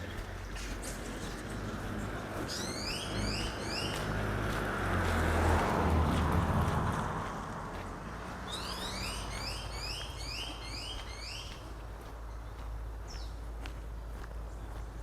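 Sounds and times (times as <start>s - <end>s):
vehicle passing: 0.0s - 15.0s
rising chirps: 2.5s - 4.0s, 8.5s - 11.5s.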